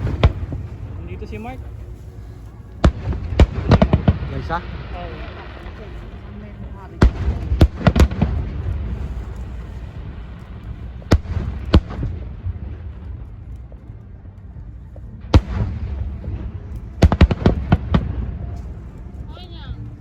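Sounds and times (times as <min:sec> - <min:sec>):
fireworks bangs: 0:00.0 - 0:02.0, 0:02.8 - 0:13.4, 0:15.3 - 0:18.9
low rolling rumble: 0:00.0 - 0:20.0
rapid firework cracks: 0:06.9 - 0:13.4, 0:15.3 - 0:18.6.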